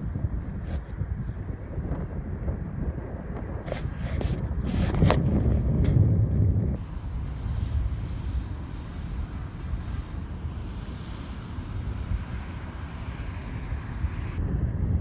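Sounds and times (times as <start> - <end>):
distant jet engines rumbling: 0.0 - 15.0.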